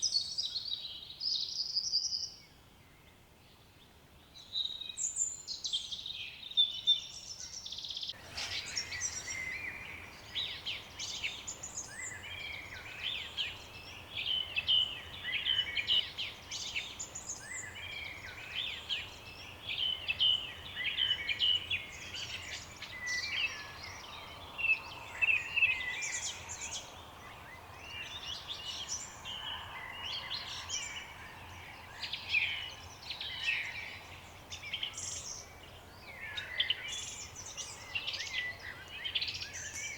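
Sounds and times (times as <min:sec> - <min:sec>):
birds chirping and trilling: 0:08.1 - 0:39.9.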